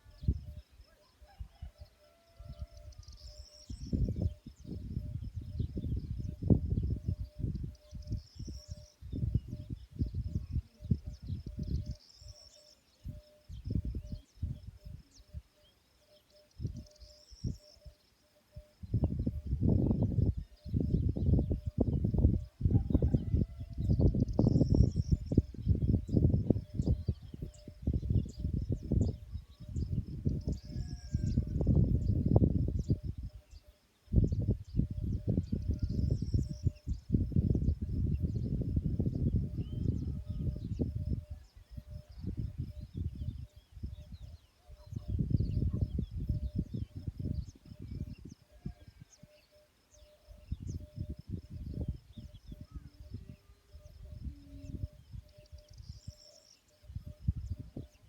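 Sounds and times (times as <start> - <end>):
faint high bird chirps: 0.0 - 58.0
insects chirping: 0.0 - 58.0
long high bird call: 30.6 - 31.6.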